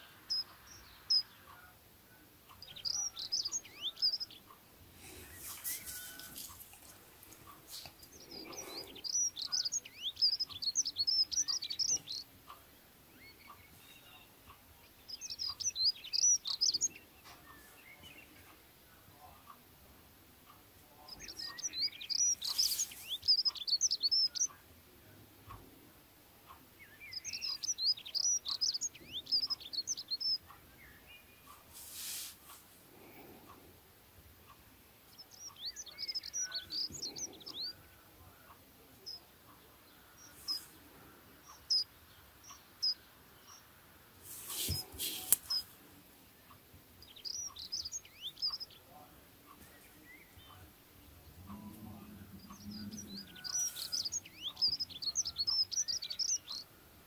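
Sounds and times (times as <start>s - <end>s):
small bird twittering: 0.0s - 1.7s, 2.5s - 4.6s, 7.8s - 18.3s, 20.9s - 24.6s, 26.8s - 31.6s, 34.5s - 37.8s, 38.5s - 43.7s, 44.4s - 45.8s, 46.4s - 50.6s, 51.5s - 56.7s
short hissing noises: 5.0s - 6.7s, 22.4s - 23.2s, 31.6s - 32.8s, 44.2s - 45.8s.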